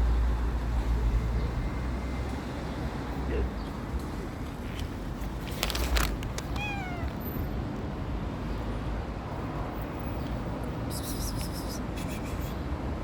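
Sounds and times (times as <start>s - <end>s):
cat meowing: 6.4s - 7.5s.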